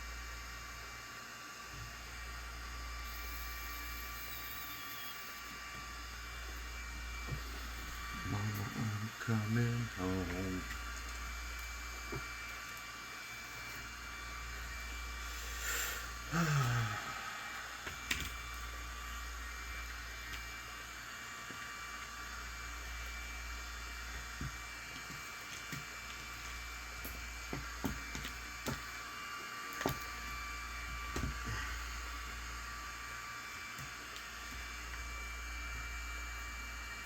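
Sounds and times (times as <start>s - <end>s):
background hiss and hum: 0.0s - 37.0s
small tools clicking and tapping: 24.4s - 28.9s.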